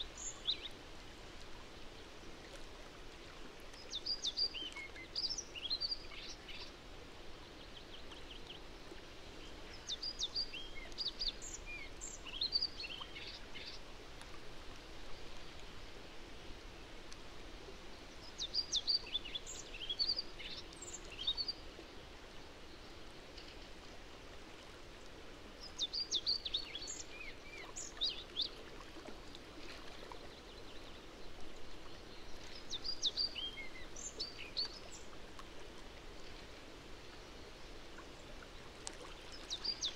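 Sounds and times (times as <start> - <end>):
songbird singing: 0.0 - 0.8, 3.7 - 6.7, 9.2 - 13.8, 18.1 - 21.7, 25.6 - 28.6, 30.3 - 35.2, 39.2 - 39.9
low background hiss: 0.0 - 39.9.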